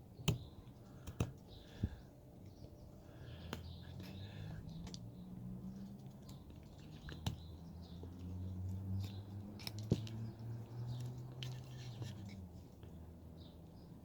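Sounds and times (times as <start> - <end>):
knife carving hard wood: 9.0 - 10.3.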